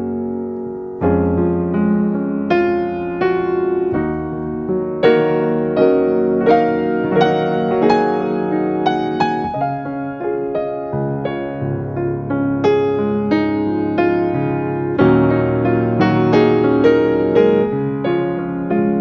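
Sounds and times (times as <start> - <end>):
soft piano music: 0.0 - 19.0.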